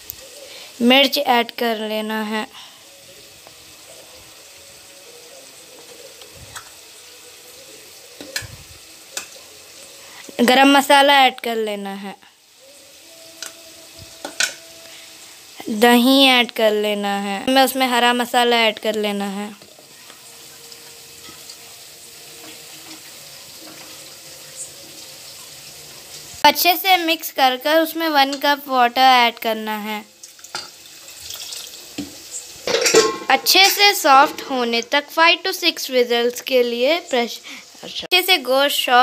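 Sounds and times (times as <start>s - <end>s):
food sizzling in oil: 0.0s - 39.0s
kitchen utensils clicking: 32.6s - 34.9s.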